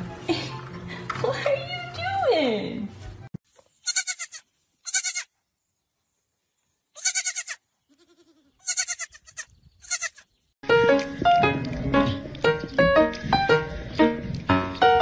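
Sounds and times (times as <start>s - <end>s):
high quavering animal cries: 7.0s - 10.3s.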